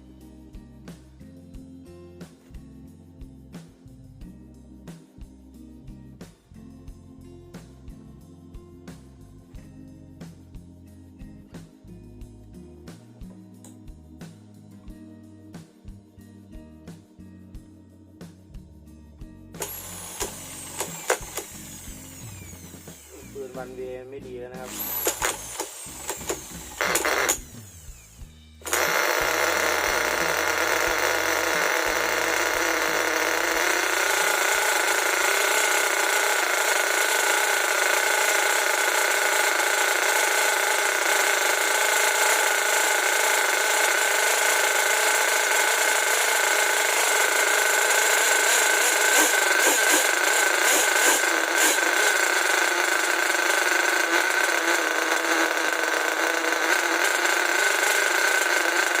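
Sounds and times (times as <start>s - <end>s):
nitro engine running at high revs: 19.6s - 23.8s, 24.6s - 59.0s.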